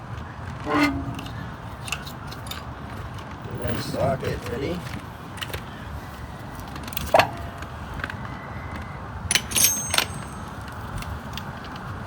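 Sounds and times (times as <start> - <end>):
metal tools clinking: 0.7 - 2.9, 9.3 - 11.5.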